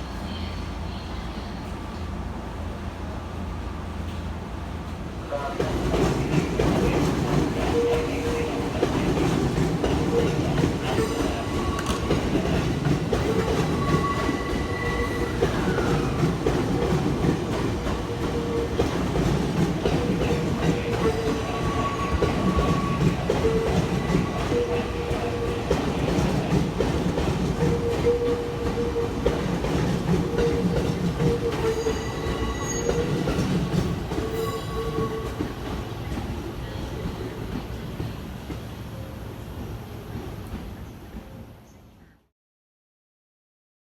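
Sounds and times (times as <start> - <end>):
subway train rumbling: 0.0 - 42.3
wheel squeals: 31.5 - 33.4.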